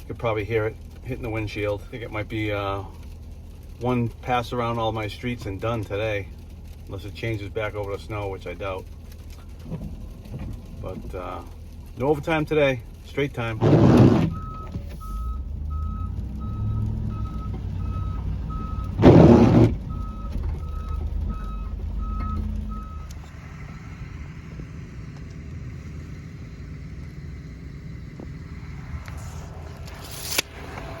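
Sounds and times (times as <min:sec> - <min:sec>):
truck engine running: 0:00.0 - 0:31.0
reversing alarm beeping: 0:14.3 - 0:23.2.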